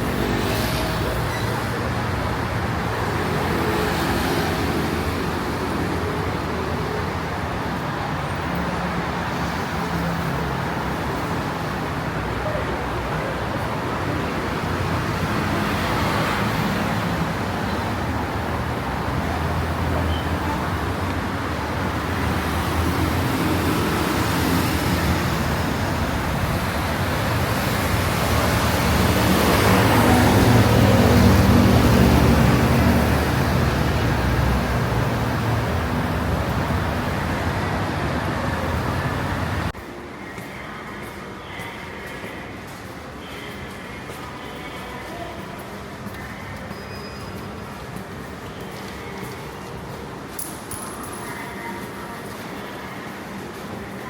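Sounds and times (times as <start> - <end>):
engine hum of passing vehicles: 0.0 - 39.8
tyre noise from passing cars: 0.0 - 54.0.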